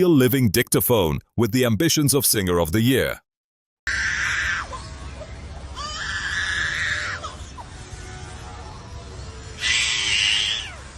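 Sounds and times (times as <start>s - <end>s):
low steady hum: 4.2s - 10.9s
animal screeching call: 5.8s - 7.7s, 9.6s - 10.9s.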